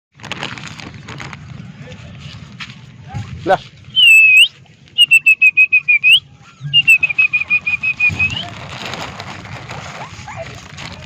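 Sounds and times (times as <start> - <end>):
puppy squealing: 6.6 - 8.4.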